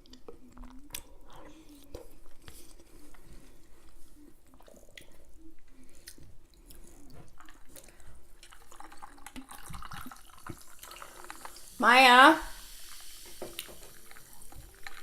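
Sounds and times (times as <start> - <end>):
person chewing food: 0.0 - 11.6.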